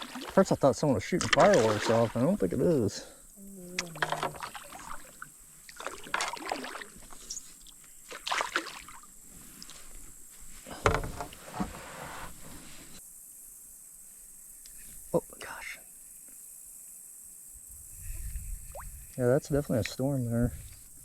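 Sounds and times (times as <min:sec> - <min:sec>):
paddle strokes and splashes: 0:00.0 - 0:00.6, 0:01.2 - 0:02.8, 0:03.9 - 0:10.0
water moving around hull: 0:00.0 - 0:03.1, 0:03.8 - 0:13.0, 0:18.0 - 0:21.0.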